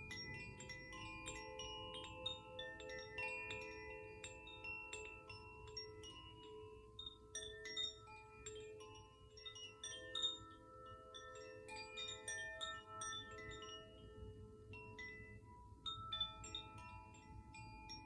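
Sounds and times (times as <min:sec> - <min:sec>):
wind chimes ringing: 0:00.0 - 0:18.0.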